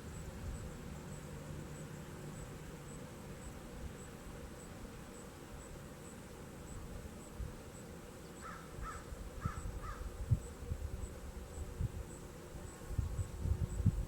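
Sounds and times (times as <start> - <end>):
bird calling: 8.4 - 10.1.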